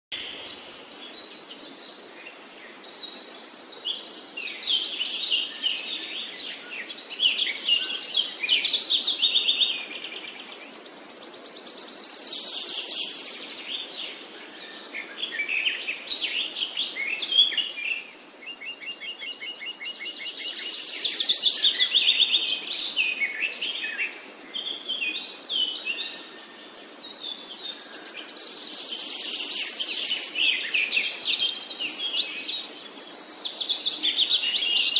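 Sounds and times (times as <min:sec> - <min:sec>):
wild birds chirping and trilling: 0:00.1 - 0:34.9.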